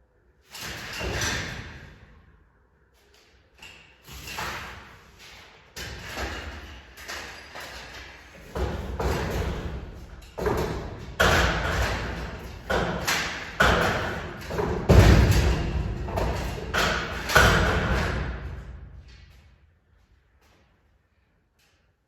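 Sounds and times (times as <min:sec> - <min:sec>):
thumps and knocks: 0:08.4 - 0:18.7.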